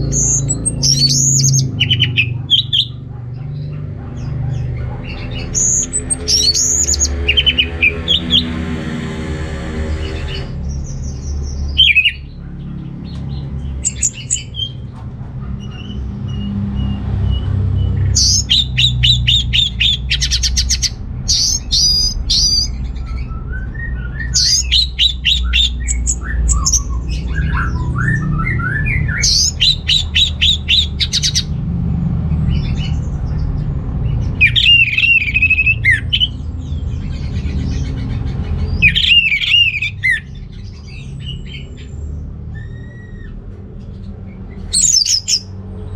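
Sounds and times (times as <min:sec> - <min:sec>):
thrush singing: 0:00.0 - 0:10.7, 0:11.6 - 0:12.4, 0:18.2 - 0:21.0, 0:21.6 - 0:31.6, 0:34.3 - 0:36.5, 0:37.4 - 0:40.4
steady low rumble: 0:00.0 - 0:45.9.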